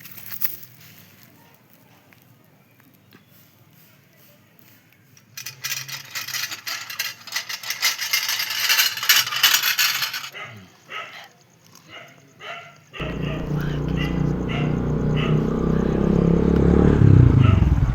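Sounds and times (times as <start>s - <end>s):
small hard objects rattling: 5.4s - 10.3s.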